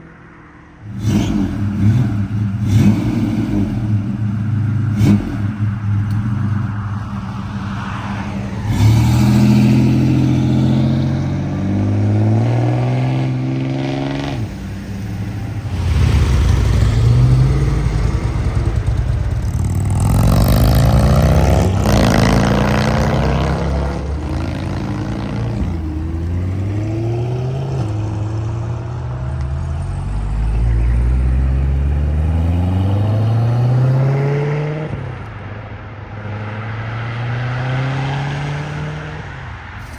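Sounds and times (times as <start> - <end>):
car engines accelerating: 0.6 - 39.9
engine shifting gears: 0.8 - 35.4, 37.4 - 39.9.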